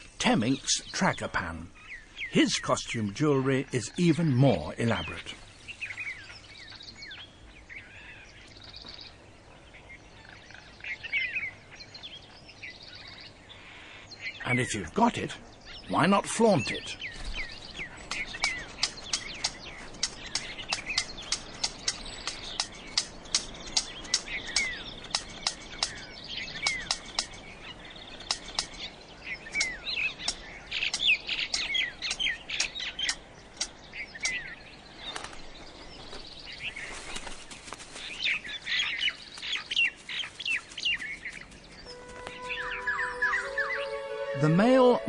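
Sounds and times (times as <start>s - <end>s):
birds chirping: 0.0s - 45.0s
sharp evenly spaced clicks: 17.6s - 34.5s.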